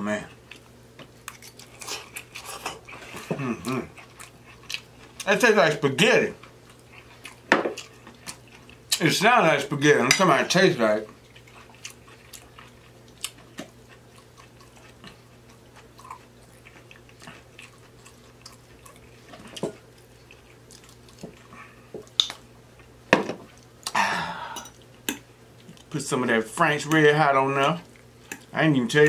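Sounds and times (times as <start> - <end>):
low room hum: 0.0 - 29.0
close-miked chewing: 0.3 - 5.4, 6.3 - 9.0, 11.0 - 24.0.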